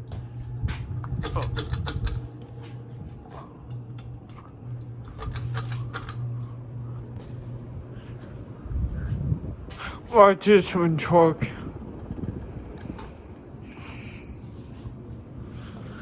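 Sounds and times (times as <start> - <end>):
ceiling fan motor hum: 0.0 - 16.0
sharp clicks and ticks: 12.0 - 14.0.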